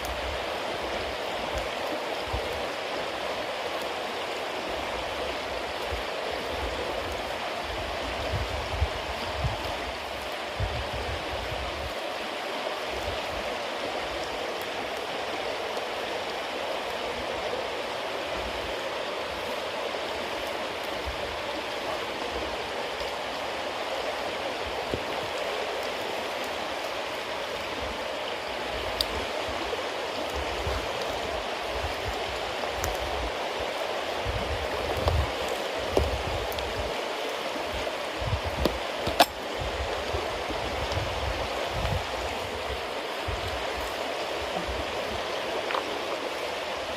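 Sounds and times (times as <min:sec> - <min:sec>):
bonfire hissing: 0:00.0 - 0:46.9
fire popping: 0:28.7 - 0:46.4.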